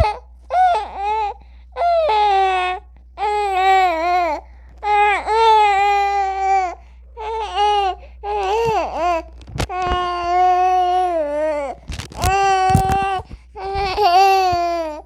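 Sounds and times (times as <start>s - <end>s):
infant crying: 0.0s - 15.0s.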